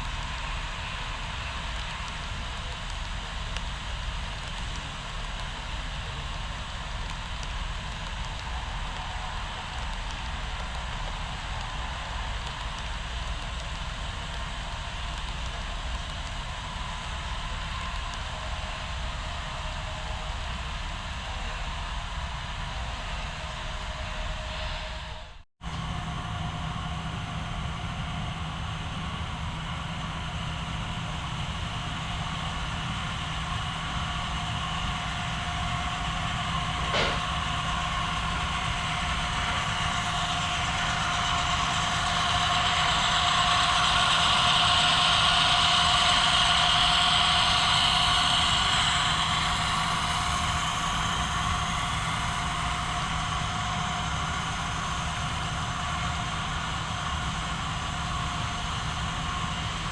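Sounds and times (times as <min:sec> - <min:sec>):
model train motor and wheel hum: 0:00.0 - 0:59.9
click: 0:07.0 - 0:10.9, 0:12.4 - 0:14.4.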